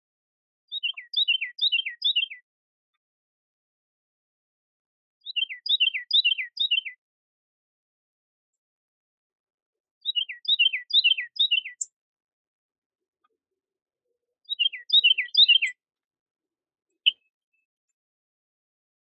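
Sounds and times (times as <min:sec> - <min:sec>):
songbird singing whistled notes: 0:00.7 - 0:02.4, 0:05.2 - 0:07.0, 0:10.0 - 0:12.0, 0:14.4 - 0:15.8, 0:17.0 - 0:17.3.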